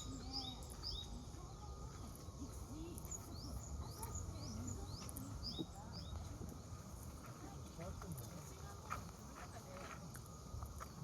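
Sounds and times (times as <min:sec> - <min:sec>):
small bird chirping: 0:00.0 - 0:06.9
faint park murmur: 0:00.0 - 0:11.0.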